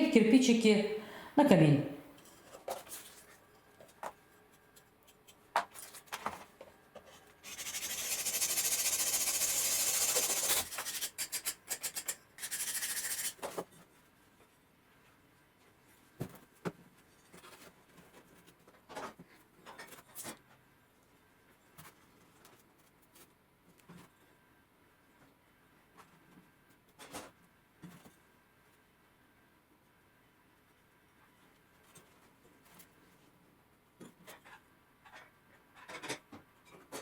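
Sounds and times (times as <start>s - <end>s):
aerosol spray can hissing: 7.4s - 11.1s.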